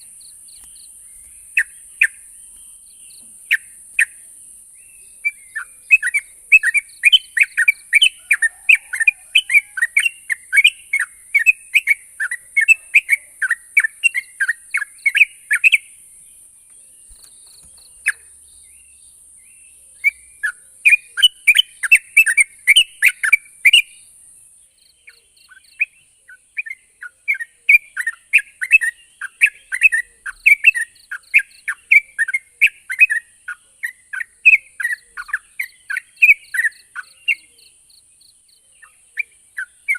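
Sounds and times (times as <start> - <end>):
steady high hiss: 0.0 - 8.0.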